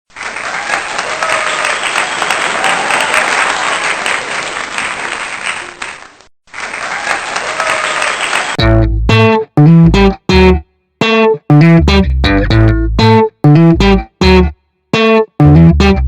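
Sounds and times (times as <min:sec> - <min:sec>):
crowd applause: 0:00.1 - 0:08.6
faint cheering voices: 0:00.2 - 0:08.6.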